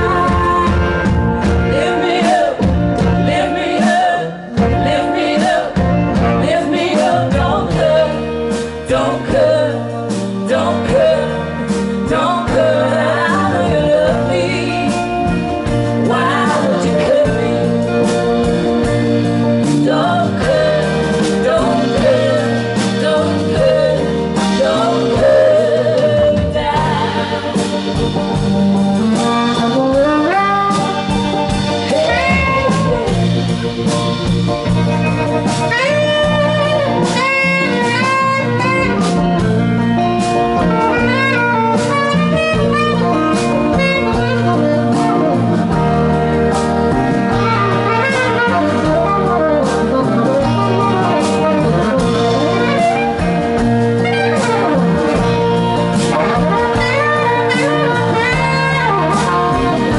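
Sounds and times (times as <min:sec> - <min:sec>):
folk band accompaniment: 0:00.0 - 0:59.9
guitar: 0:00.0 - 0:59.9
saxophone solo: 0:00.0 - 0:59.9.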